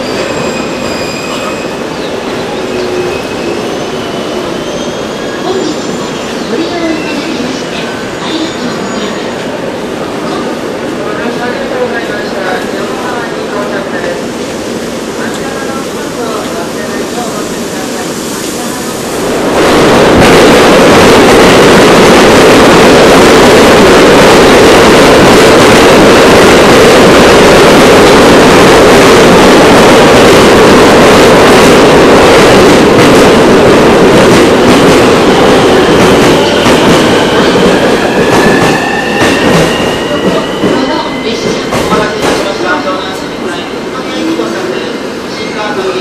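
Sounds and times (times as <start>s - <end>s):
train rushing into station: 0.0s - 46.0s.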